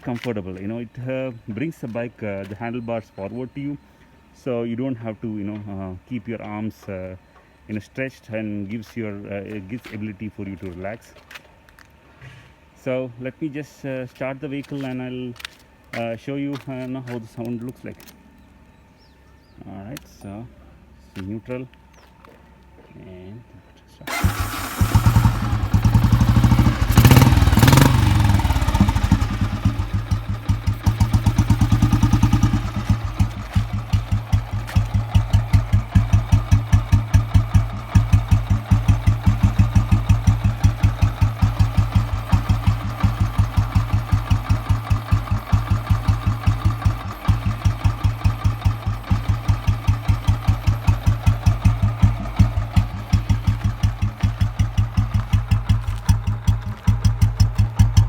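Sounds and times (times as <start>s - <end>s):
motorcycle engine idling: 24.0s - 58.0s.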